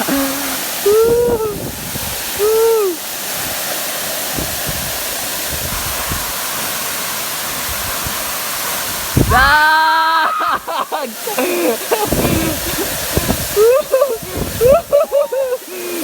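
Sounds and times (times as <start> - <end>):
person calling: 0.0 - 1.7, 2.4 - 3.0, 9.3 - 12.8
waterfall rushing: 0.0 - 16.0.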